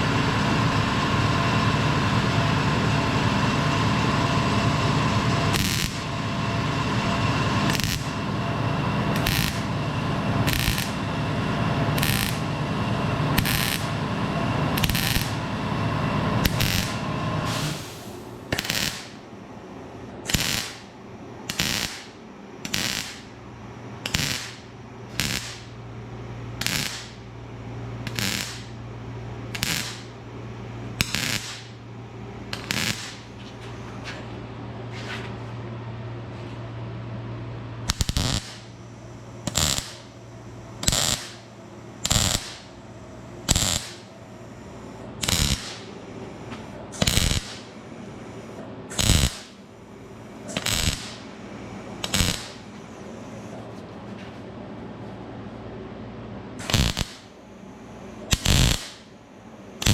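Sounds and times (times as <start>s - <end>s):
low hum: 0.0s - 18.6s
welder crackling bursts: 3.4s - 19.2s, 20.2s - 23.4s, 24.0s - 25.8s, 26.4s - 27.3s, 28.0s - 30.3s, 30.9s - 33.4s, 37.8s - 44.2s, 44.8s - 46.3s, 46.9s - 47.8s, 48.9s - 49.6s, 50.4s - 52.8s, 56.6s - 57.4s, 58.1s - 59.2s.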